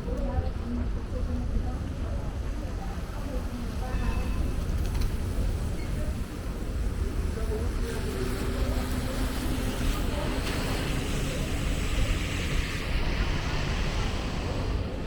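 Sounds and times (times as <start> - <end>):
traffic rumble: 0.0 - 15.0
rain on wet pavement: 6.6 - 13.1.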